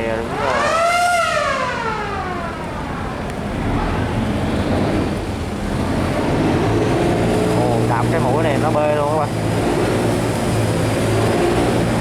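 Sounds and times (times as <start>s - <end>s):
boat engines running: 0.0s - 12.0s
rushing water and wind: 0.0s - 12.0s
siren-like horn tone: 0.2s - 4.2s.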